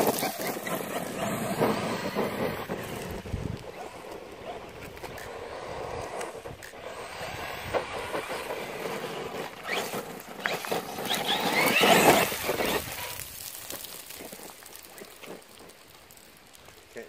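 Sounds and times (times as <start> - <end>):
electric motor whine: 0.0 - 13.2
gravel clattering: 0.0 - 17.0
tyres churning dirt: 0.0 - 17.0.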